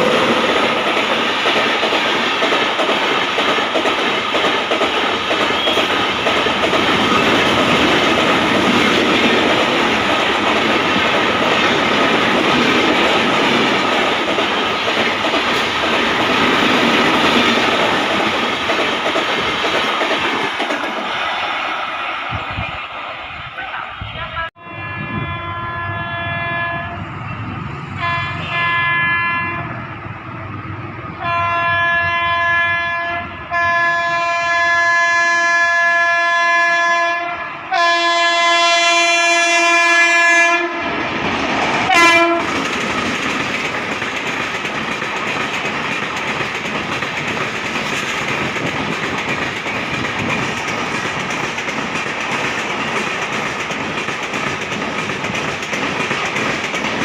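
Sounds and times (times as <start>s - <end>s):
train wheels rumbling on rails: 0.0s - 36.2s, 37.7s - 57.0s
train horn blasts: 24.3s - 27.0s, 28.0s - 29.8s, 31.2s - 41.0s, 41.9s - 42.6s.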